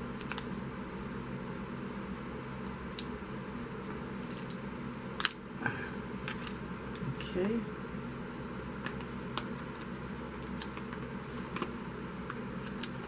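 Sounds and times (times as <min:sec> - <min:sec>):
electric fan humming: 0:00.0 - 0:13.0.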